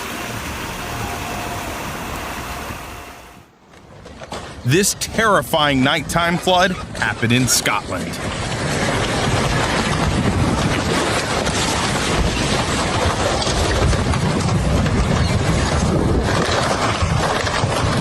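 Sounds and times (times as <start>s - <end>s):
floodwater rushing: 0.0s - 3.4s.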